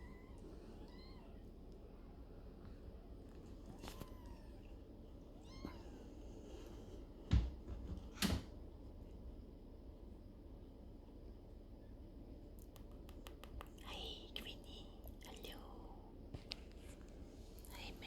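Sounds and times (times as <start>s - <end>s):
kittens mewing: 3.7s - 6.2s.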